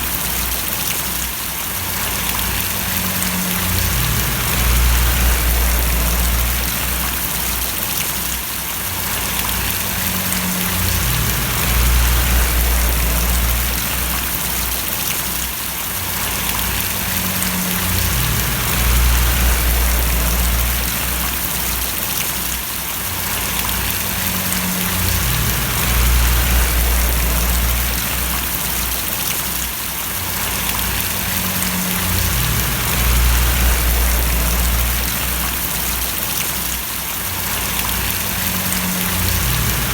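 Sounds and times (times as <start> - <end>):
rain falling and splashing: 0.0 - 39.9
low rumble: 2.0 - 7.7, 9.4 - 15.0, 16.3 - 22.0, 23.5 - 29.3, 30.4 - 36.2, 37.6 - 39.9.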